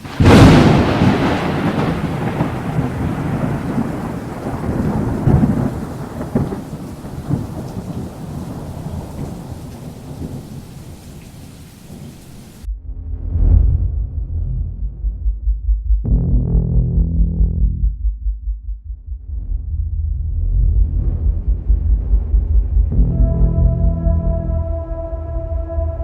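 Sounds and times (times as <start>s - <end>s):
rain: 0.0s - 12.7s
thunder rumbling: 0.0s - 15.5s, 19.2s - 26.0s
low synth music: 12.6s - 18.2s, 19.1s - 26.0s.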